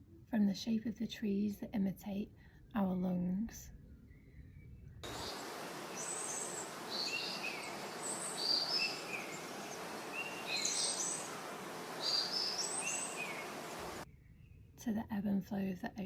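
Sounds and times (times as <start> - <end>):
birds chirping: 5.0 - 14.0
steady outdoor hiss: 5.0 - 14.0.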